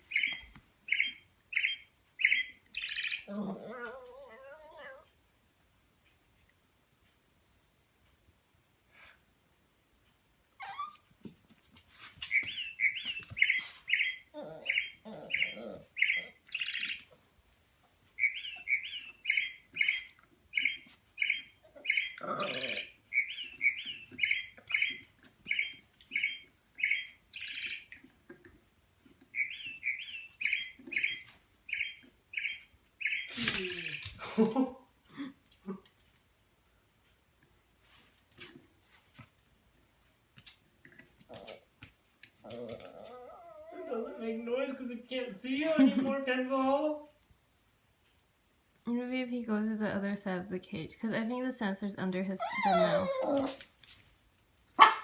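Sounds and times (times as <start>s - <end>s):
puppy whining: 0.0s - 5.2s, 10.6s - 11.1s, 12.0s - 17.2s, 18.2s - 27.1s, 41.3s - 41.7s, 42.4s - 44.4s, 52.4s - 53.8s
toy bird electronic chirps: 0.1s - 3.3s, 12.3s - 17.1s, 18.2s - 27.9s, 29.4s - 34.0s.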